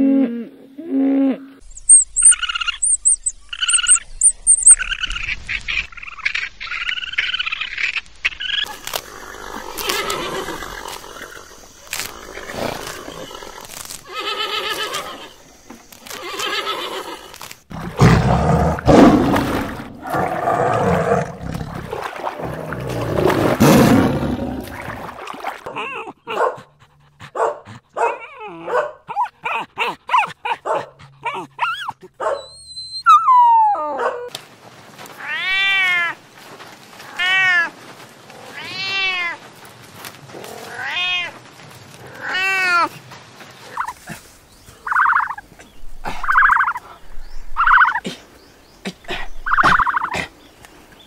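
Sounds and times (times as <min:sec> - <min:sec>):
tiger roaring: 0:17.7 - 0:25.1.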